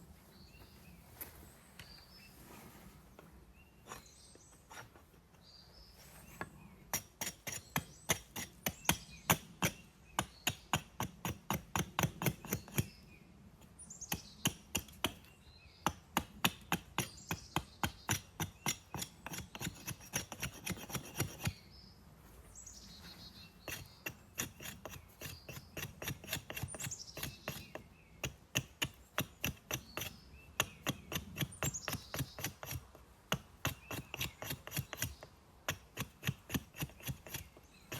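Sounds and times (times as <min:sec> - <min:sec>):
birds chirping: 0:00.2 - 0:10.8, 0:20.8 - 0:32.8, 0:37.0 - 0:37.9.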